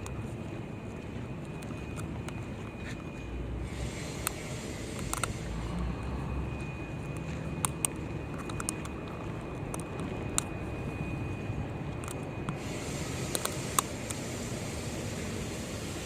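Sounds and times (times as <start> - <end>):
low rumble of city noise: 0.0 - 16.0
thin high whine: 0.0 - 16.0
sharp clicks: 4.0 - 6.1, 7.1 - 10.5, 13.3 - 14.2.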